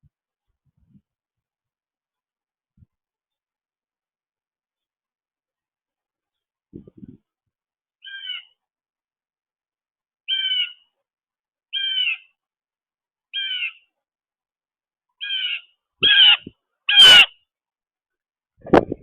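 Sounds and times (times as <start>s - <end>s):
bird calling: 8.0s - 8.6s, 10.2s - 11.0s, 11.7s - 12.4s, 13.3s - 13.9s, 15.2s - 17.4s.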